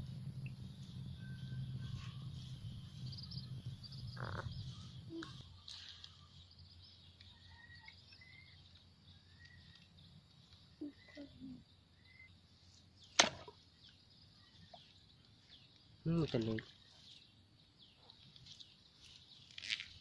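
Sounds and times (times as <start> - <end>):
low rumble: 0.0 - 5.6
wild birds chirping: 0.0 - 20.0.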